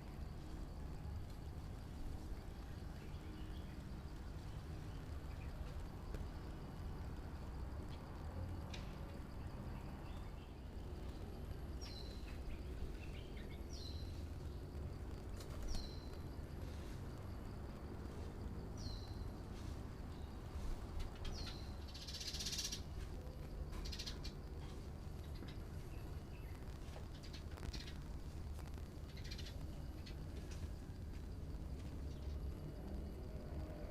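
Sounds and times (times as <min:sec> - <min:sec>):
low background rumble: 0:00.0 - 0:33.9
harsh buzzy bird chatter: 0:11.6 - 0:16.8, 0:20.1 - 0:23.0, 0:23.7 - 0:30.6.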